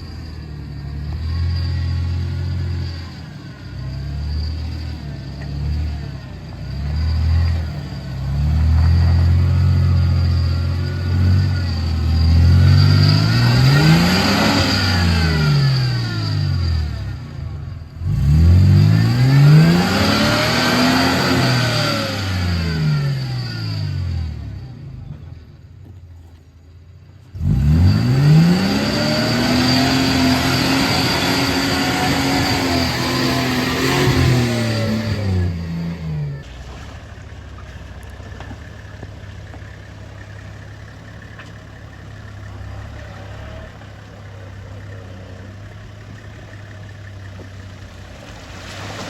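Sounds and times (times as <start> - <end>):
engine revving hard: 5.6 - 17.4, 18.0 - 24.6, 27.4 - 36.4.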